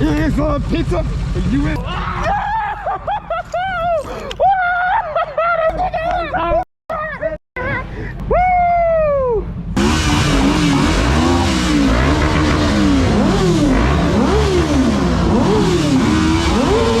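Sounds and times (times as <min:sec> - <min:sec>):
motorcycle engine revving: 0:09.7 - 0:17.0.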